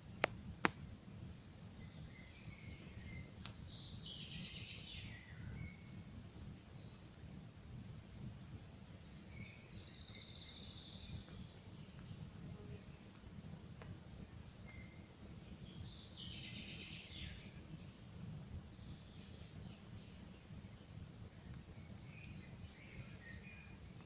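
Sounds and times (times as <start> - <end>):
small birds chirping: 0.0 - 0.9, 1.5 - 24.0
campfire crackle: 0.0 - 9.9, 11.0 - 24.0.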